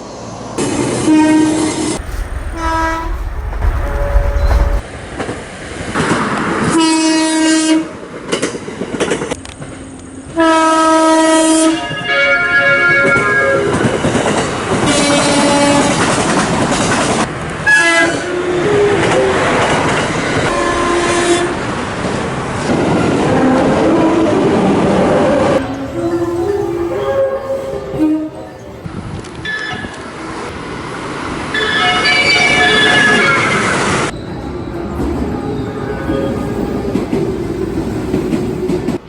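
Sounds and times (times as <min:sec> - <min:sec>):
trains running on rails: 0:00.0 - 0:39.0
electric train horn blasts: 0:01.0 - 0:04.8, 0:10.4 - 0:13.7, 0:20.5 - 0:21.9, 0:25.4 - 0:29.0.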